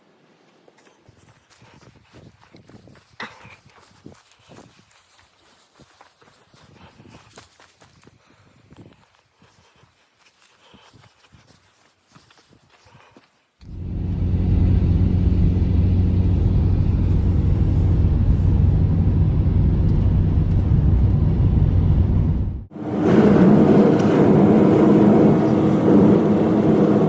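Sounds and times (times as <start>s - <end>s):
engine humming: 13.6s - 27.0s.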